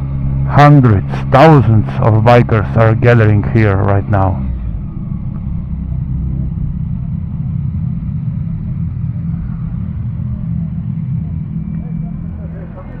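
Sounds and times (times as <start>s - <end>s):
motorcycle engine low rumble: 0.0s - 13.0s.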